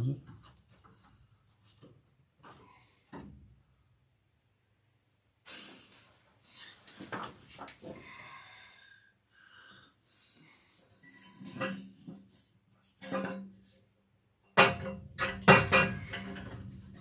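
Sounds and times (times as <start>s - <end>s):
metal clanking and scraping: 11.0s - 12.0s, 12.9s - 13.6s, 14.6s - 17.0s.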